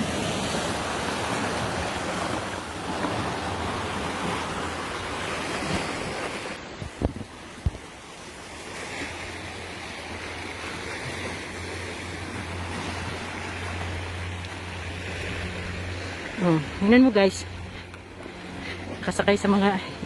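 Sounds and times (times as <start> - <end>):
waves on rocky shore: 0.0 - 20.0
wind on microphone: 5.4 - 8.0.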